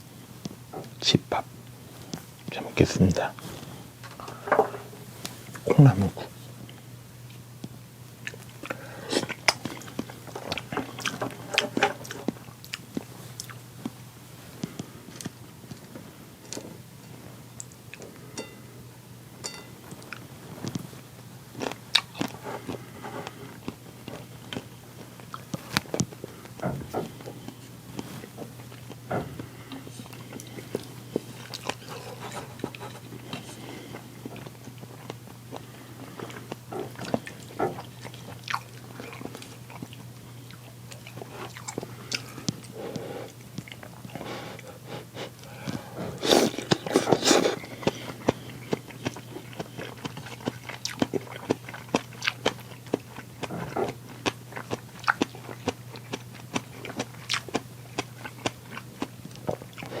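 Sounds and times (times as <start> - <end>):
steady low hum: 0.0 - 60.0
biting and chewing: 8.2 - 14.0, 21.5 - 60.0.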